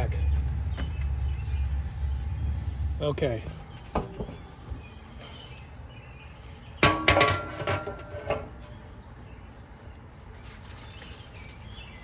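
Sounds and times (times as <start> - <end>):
metal cookware clanking: 6.8 - 8.8.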